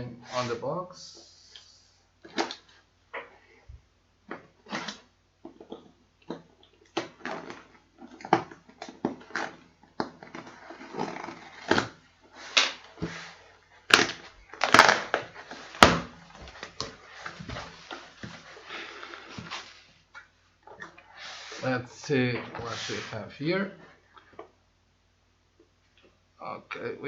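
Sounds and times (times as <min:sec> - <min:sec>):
packaging rustling: 0:07.0 - 0:19.8
cardboard box crinkling and scraping: 0:07.1 - 0:13.4.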